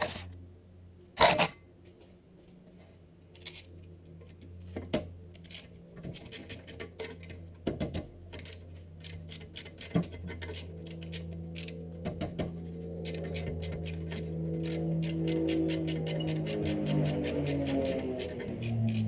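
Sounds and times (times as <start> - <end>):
metallic clicks: 13.0 - 19.0.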